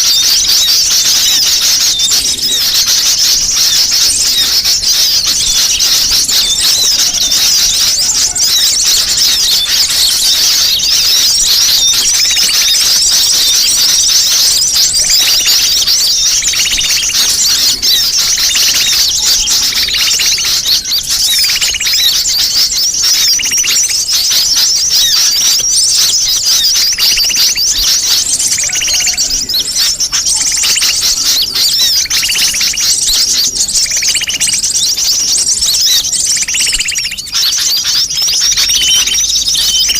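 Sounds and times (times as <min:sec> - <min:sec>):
lower bird call: 0:00.0 - 0:39.9
sunbirds twittering: 0:00.0 - 0:39.9.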